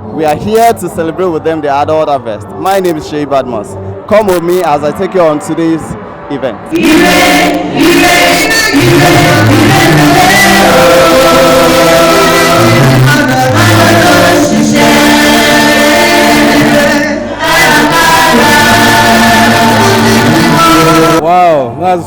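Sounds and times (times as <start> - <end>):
choir singing gospel music: 6.4 - 21.2.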